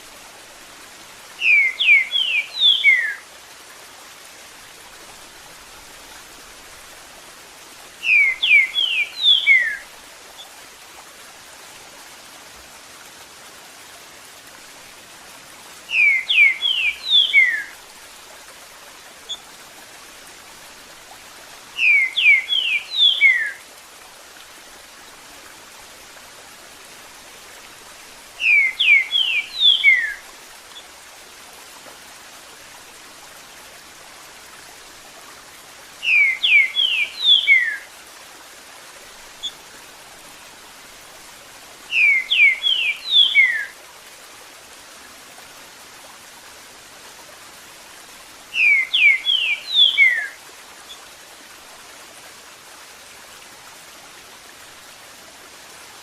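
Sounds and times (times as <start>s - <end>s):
running water hiss: 0.0s - 56.0s
bird whistling song: 1.4s - 3.2s, 8.0s - 9.8s, 15.9s - 17.7s, 21.8s - 23.6s, 28.4s - 30.2s, 36.0s - 37.9s, 41.9s - 43.7s, 48.6s - 50.4s.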